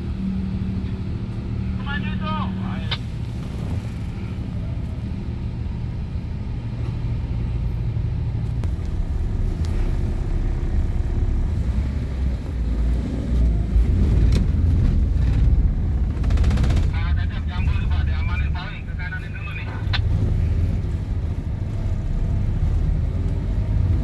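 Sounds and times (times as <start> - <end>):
car engine rumbling: 0.0 - 24.0.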